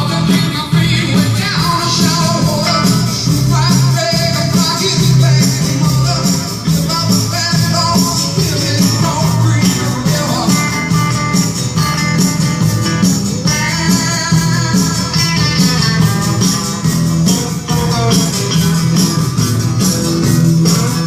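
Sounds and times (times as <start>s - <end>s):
music on radio: 0.0s - 21.0s.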